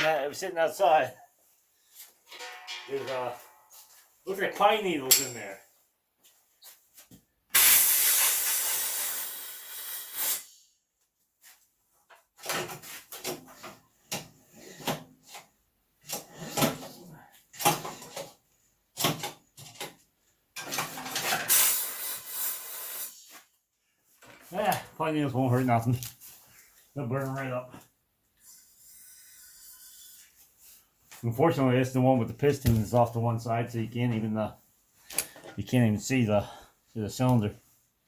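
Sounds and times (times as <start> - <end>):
aerosol can spraying: 7.6 - 10.4, 21.5 - 23.2.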